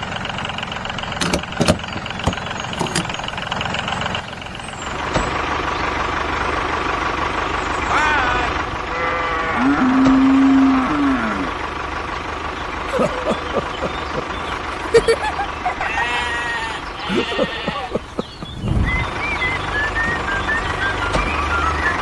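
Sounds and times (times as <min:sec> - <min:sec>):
engine-like hum: 0:00.0 - 0:22.0
animal bleating: 0:07.9 - 0:11.5, 0:15.8 - 0:18.1
cow mooing: 0:08.0 - 0:11.6, 0:15.9 - 0:18.0.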